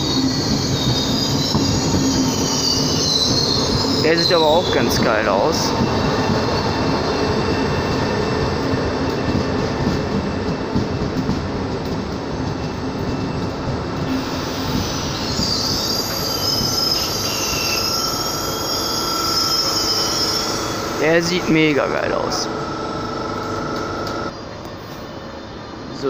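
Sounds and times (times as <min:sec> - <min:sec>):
high train squeal: 0:00.0 - 0:11.4, 0:12.2 - 0:26.0
wheel on rail rumble: 0:22.1 - 0:24.3.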